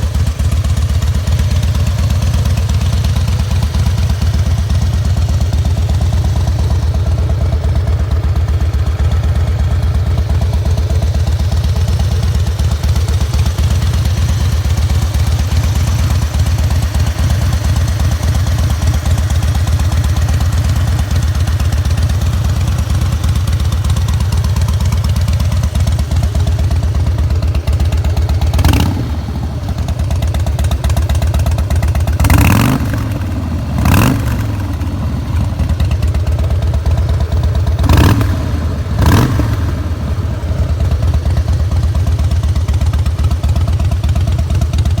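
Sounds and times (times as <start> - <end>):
motorcycle engine idling and revving: 0.0 - 45.0.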